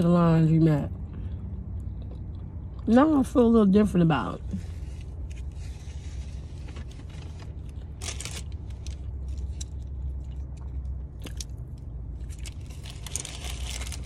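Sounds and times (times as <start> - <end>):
steady low hum: 0.0 - 14.0
wet mouth clicks and crunches: 9.3 - 12.6.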